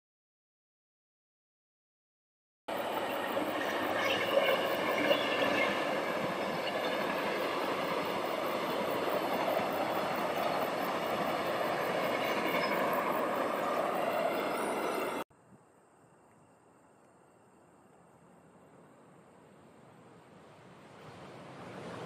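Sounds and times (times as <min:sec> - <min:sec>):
train wheels on rails: 0:02.7 - 0:15.2.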